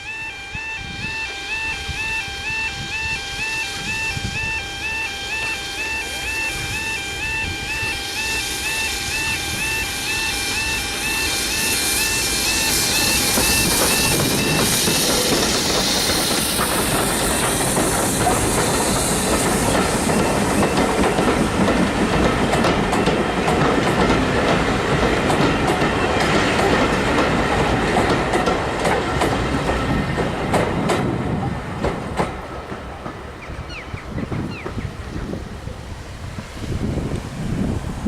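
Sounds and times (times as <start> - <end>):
train wheels clattering over rails: 10.8 - 35.3.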